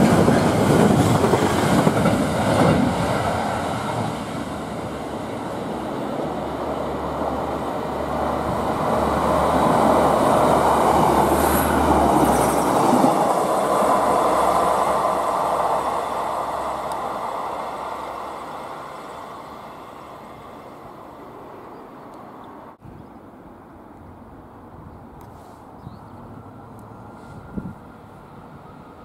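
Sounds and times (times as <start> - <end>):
train wheels on rails: 0.0 - 22.8.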